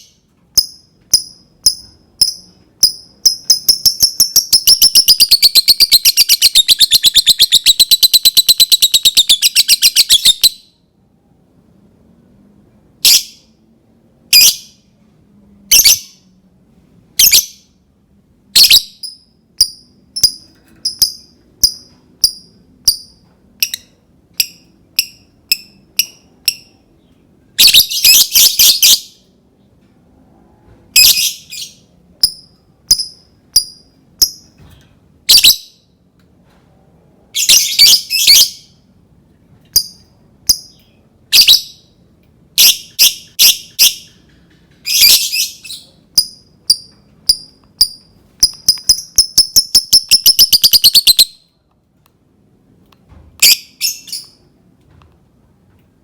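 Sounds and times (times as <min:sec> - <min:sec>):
bird chirping: 0:00.0 - 0:10.8, 0:18.6 - 0:29.3, 0:31.0 - 0:34.6, 0:35.3 - 0:35.9, 0:37.4 - 0:38.8, 0:39.7 - 0:42.0, 0:42.6 - 0:51.5, 0:53.4 - 0:54.5
bird chattering: 0:01.2 - 0:10.5.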